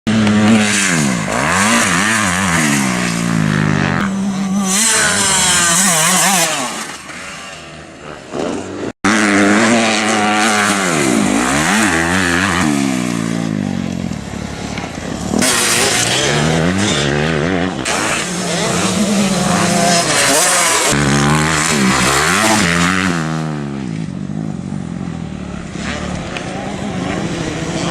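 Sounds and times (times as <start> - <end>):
motocross bike engines revving: 0.1 - 27.9.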